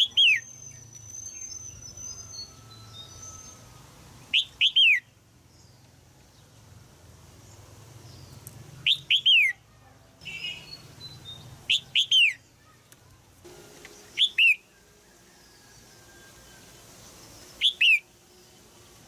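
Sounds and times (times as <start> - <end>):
bulbul calling: 0.0 - 3.7, 4.3 - 5.2, 8.1 - 18.6
soft bird chatter: 0.0 - 19.0.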